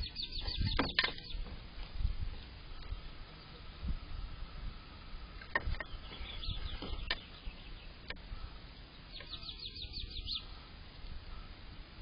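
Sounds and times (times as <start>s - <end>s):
small bird chirping: 0.0s - 1.5s, 5.6s - 11.5s.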